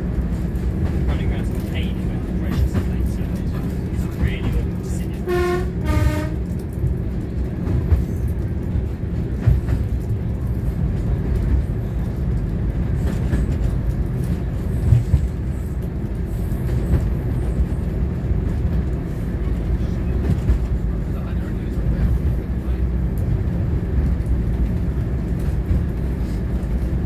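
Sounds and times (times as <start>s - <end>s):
train rumbling along track: 0.0s - 27.0s
train horn notes: 5.2s - 6.6s.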